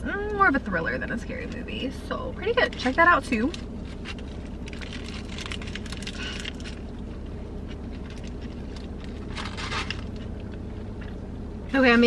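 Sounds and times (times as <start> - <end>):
steady low hum: 0.0 - 12.0
paper wrapper crinkling: 2.6 - 11.0.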